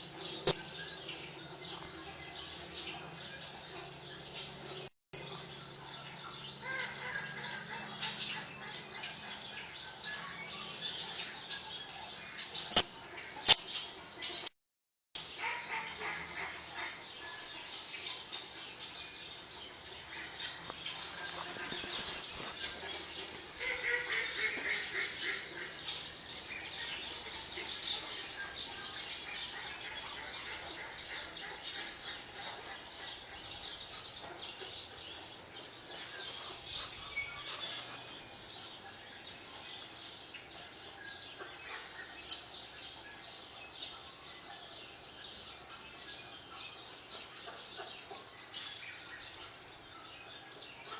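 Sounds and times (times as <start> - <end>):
small birds chirping on tv: 15.2 - 50.9.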